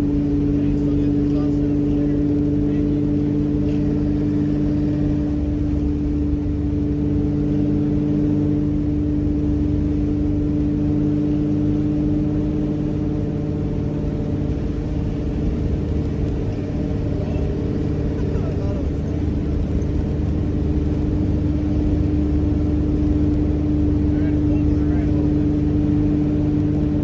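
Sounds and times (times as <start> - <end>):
strong steady whine: 0.0 - 27.0
truck engine running: 0.0 - 27.0.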